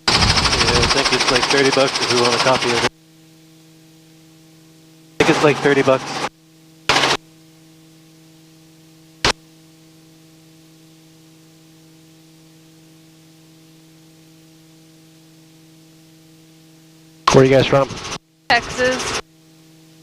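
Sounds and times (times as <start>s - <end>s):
loud burst of noise: 0.0s - 2.9s, 17.6s - 19.2s
electrical hum with hiss: 0.0s - 20.0s.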